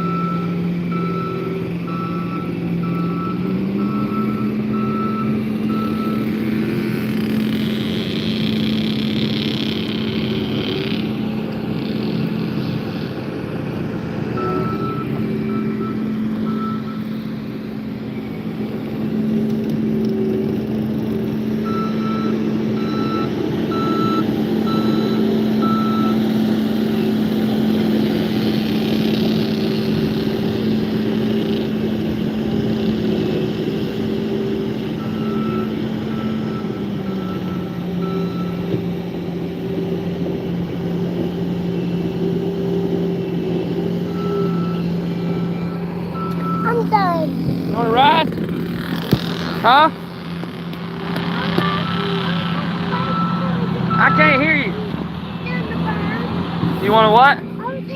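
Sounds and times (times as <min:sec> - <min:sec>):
engine running: 0:00.0 - 0:57.9
backup alarm beeping: 0:14.4 - 0:17.1, 0:53.0 - 0:54.4.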